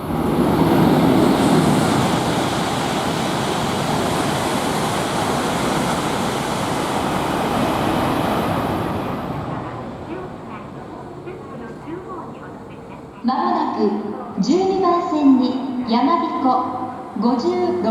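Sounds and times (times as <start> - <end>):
train passing at speed: 0.0 - 17.9.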